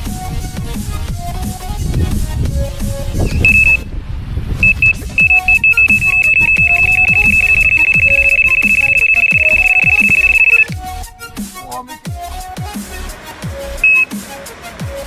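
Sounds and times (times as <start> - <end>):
bite alarm beeping: 3.3 - 3.8, 4.6 - 10.8, 13.8 - 14.1.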